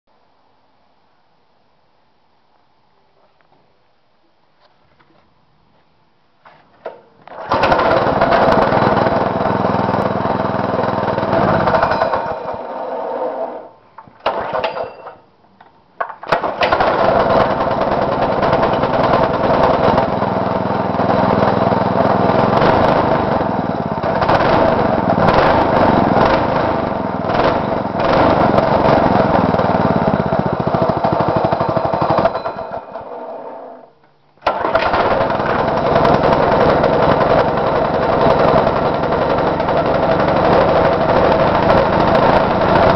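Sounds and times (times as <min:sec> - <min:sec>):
small engine running: 0:07.3 - 0:13.6, 0:16.7 - 0:33.7, 0:34.5 - 0:42.9.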